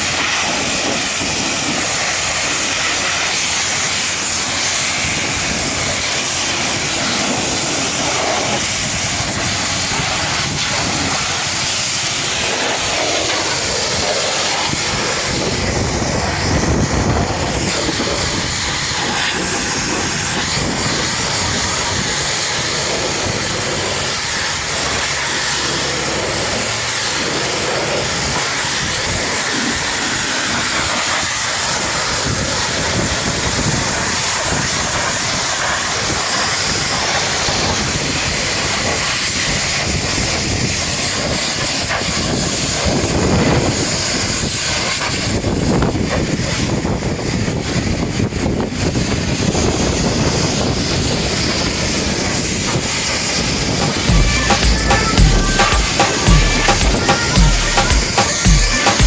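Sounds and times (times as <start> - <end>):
pressure washer spraying water: 0.0 - 46.9, 48.9 - 59.0.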